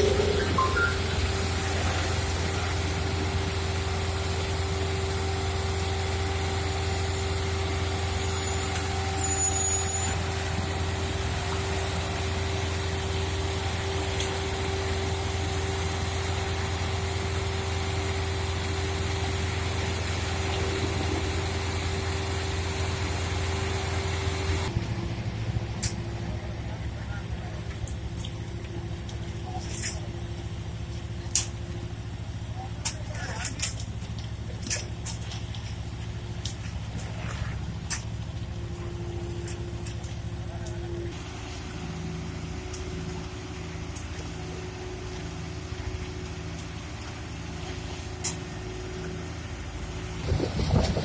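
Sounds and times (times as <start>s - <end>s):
diesel machinery engine drone: 0.0s - 51.0s.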